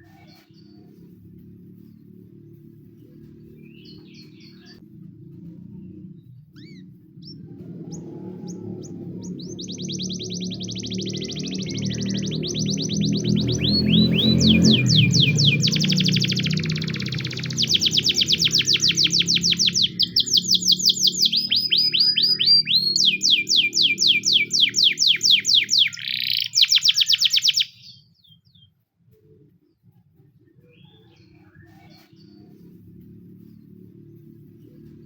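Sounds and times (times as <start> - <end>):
canary singing: 0.0 - 4.9, 5.7 - 28.7.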